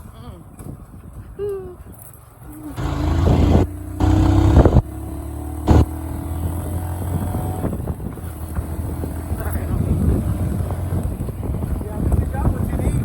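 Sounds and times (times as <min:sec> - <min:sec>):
motorcycle engine revving: 0:02.8 - 0:11.4.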